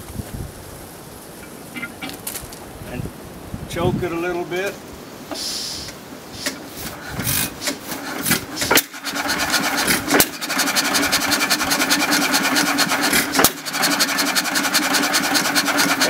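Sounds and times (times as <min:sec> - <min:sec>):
engine firing strokes: 0:05.3 - 0:16.0
stationary engine clattering: 0:06.4 - 0:16.0.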